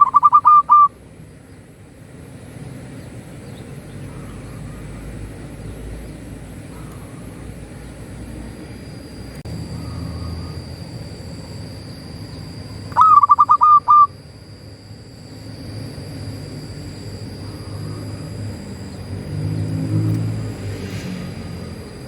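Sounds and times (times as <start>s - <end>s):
dove cooing: 0.0s - 1.0s, 9.6s - 10.8s, 12.0s - 14.2s.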